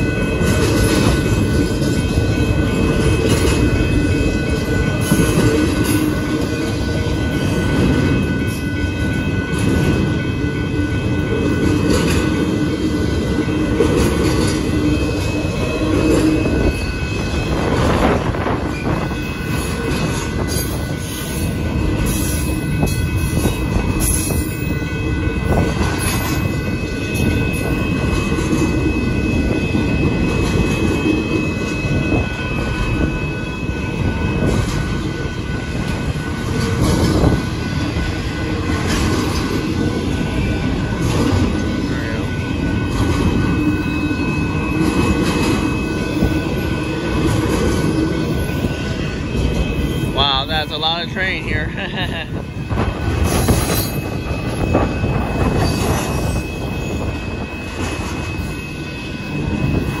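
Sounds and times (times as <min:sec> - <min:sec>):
train wheels rumbling on rails: 0:00.0 - 1:00.0
high wheel squeal: 0:52.5 - 1:00.0.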